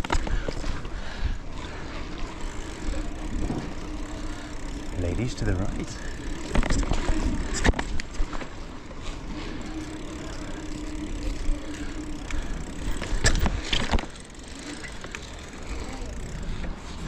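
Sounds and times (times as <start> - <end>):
bike knocks and rattles: 0.0 - 0.9, 2.0 - 17.0
bike tyres and wind rumble: 0.0 - 17.0.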